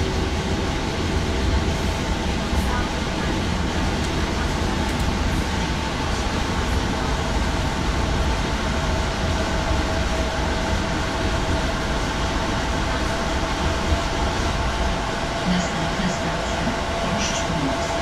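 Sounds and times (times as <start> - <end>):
train wheels rumbling on track: 0.0 - 18.0.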